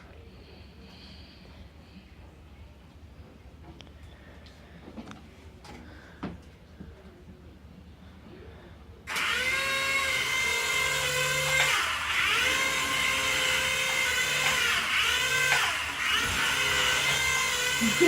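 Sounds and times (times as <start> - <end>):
toy helicopter motor whine: 9.1 - 18.0.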